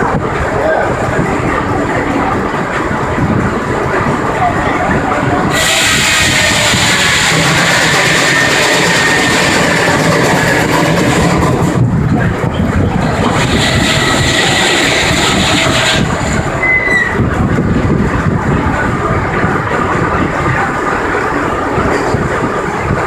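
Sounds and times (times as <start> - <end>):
sawmill running: 5.5 - 11.8, 13.0 - 17.9.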